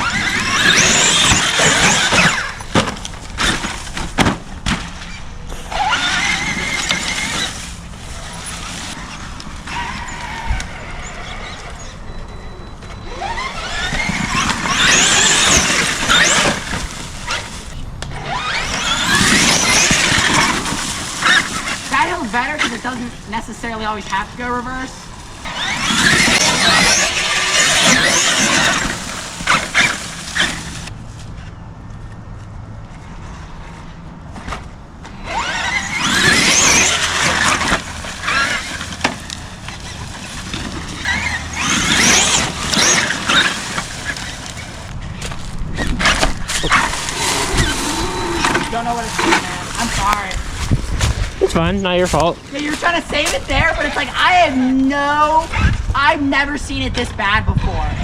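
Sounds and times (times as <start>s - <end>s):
electric motor whining: 0.0s - 4.0s, 5.4s - 22.6s, 24.6s - 30.9s, 35.1s - 44.9s, 45.8s - 51.7s.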